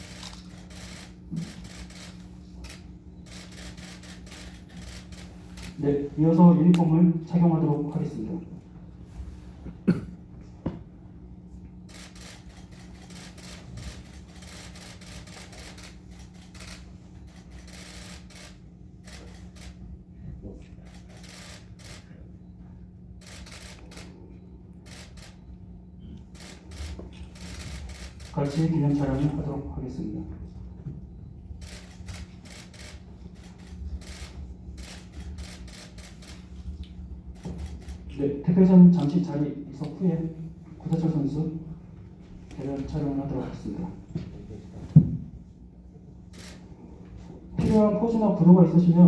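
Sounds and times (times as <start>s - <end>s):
camera shutters clicking: 0.0s - 5.8s, 11.9s - 19.8s, 20.9s - 22.1s, 23.2s - 24.2s, 24.8s - 25.4s, 26.2s - 29.3s, 31.6s - 36.5s, 46.3s - 46.7s
steady low hum: 0.0s - 49.0s.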